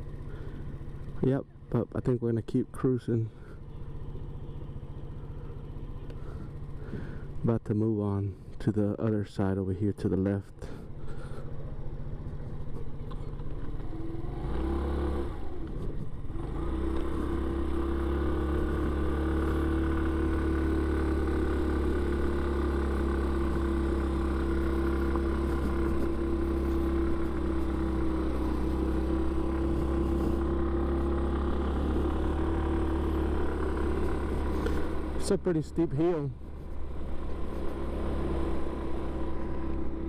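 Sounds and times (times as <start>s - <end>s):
scooter engine accelerating: 10.8s - 40.0s.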